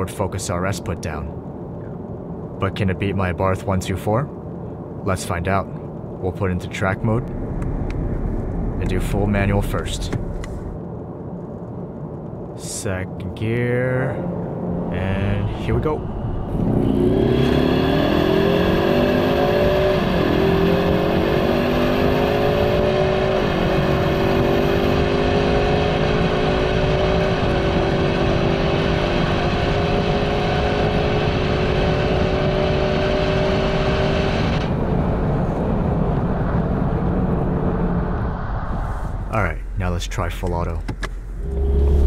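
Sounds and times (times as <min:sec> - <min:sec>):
road noise: 0:00.0 - 0:42.0
car engine at full throttle: 0:14.2 - 0:39.6, 0:40.4 - 0:42.0.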